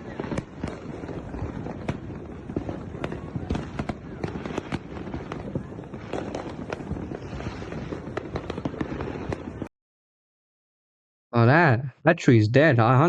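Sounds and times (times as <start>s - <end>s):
fireworks bangs and cracks: 0.0s - 9.7s
fireworks crackling: 0.0s - 9.7s.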